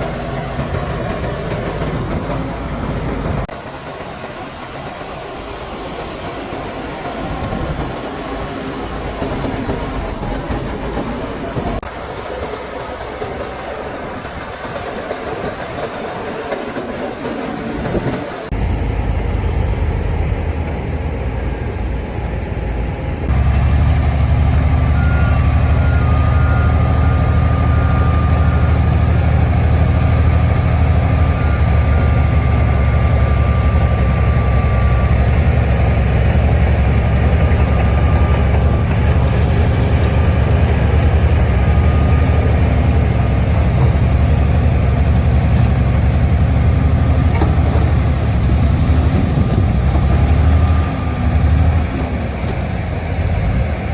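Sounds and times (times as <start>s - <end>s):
diesel machinery engine drone: 0.0s - 16.5s, 17.1s - 53.9s.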